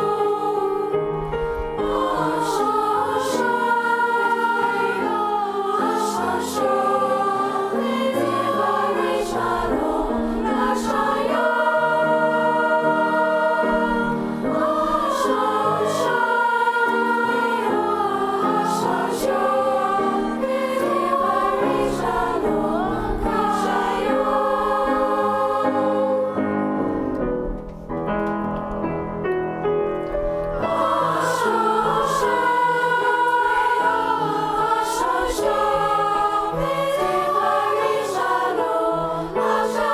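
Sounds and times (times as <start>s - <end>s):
choir singing: 0.0s - 27.6s, 30.4s - 39.9s.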